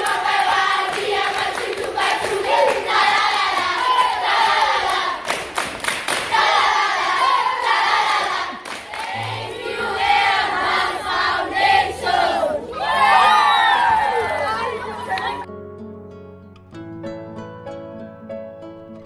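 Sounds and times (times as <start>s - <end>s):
children singing and shouting: 0.0s - 5.3s, 6.3s - 15.5s
sharp claps: 0.0s - 6.4s, 8.6s - 9.2s.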